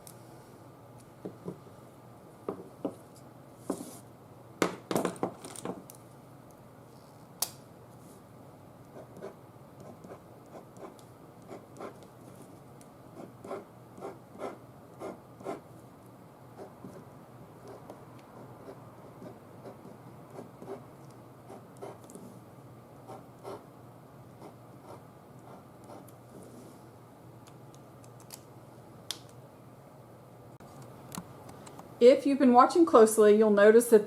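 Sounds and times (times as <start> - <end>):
taps and knocks on tabletop: 2.5 - 3.0.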